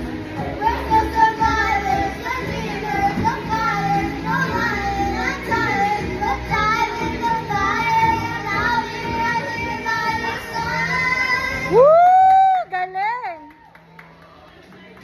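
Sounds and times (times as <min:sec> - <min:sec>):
backing music: 0:00.0 - 0:12.6
child singing: 0:00.4 - 0:11.8.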